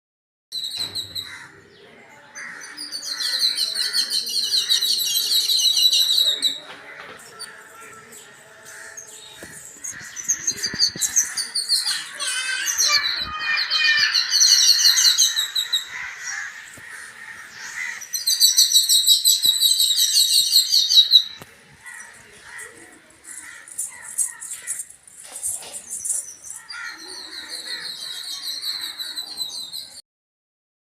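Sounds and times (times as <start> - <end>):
birds chirping in fast trills: 7.2 - 30.0.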